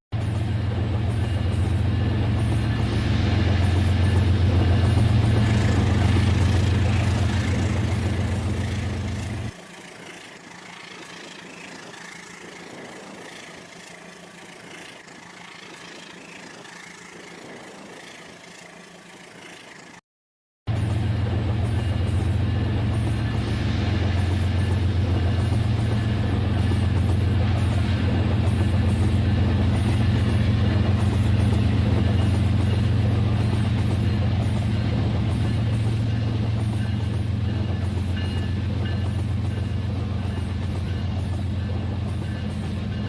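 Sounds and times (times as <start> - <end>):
toy train motor rumbling on track: 5.2 - 20.0.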